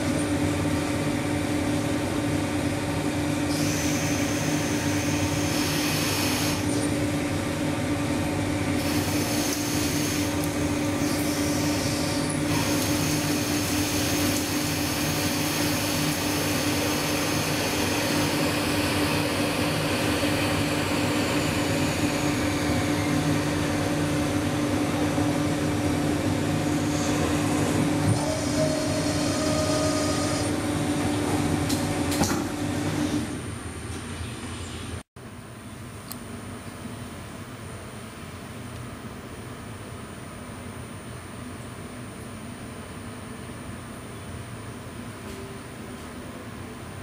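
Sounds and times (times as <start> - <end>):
lathe motor hum: 3.3 - 31.6.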